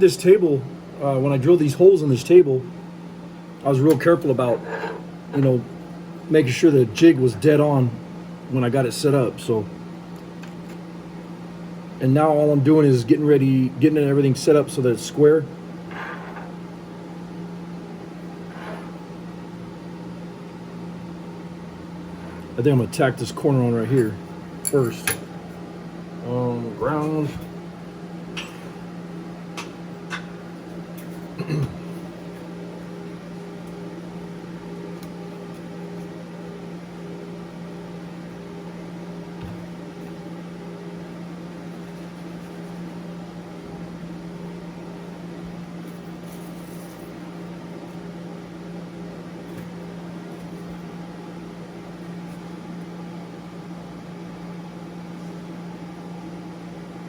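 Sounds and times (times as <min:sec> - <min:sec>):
electrical machine hum: 0:00.0 - 0:57.0.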